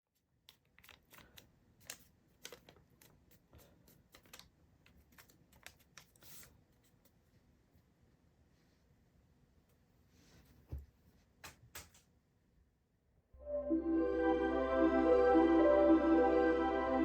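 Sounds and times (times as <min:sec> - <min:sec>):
paper crackling and crinkling: 0:00.5 - 0:06.5.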